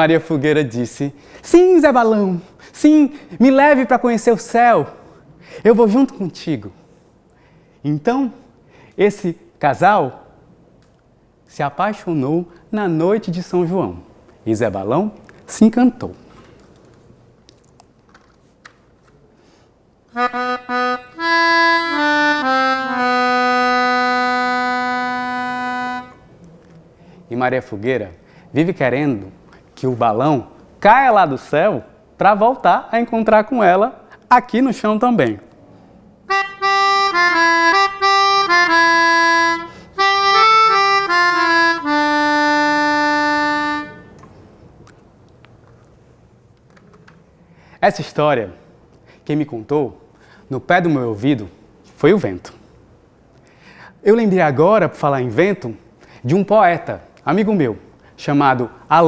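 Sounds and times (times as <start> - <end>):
harmonica melody: 20.1 - 26.3, 36.3 - 44.2
free-reed instrument phrase: 20.2 - 26.3, 36.3 - 44.2.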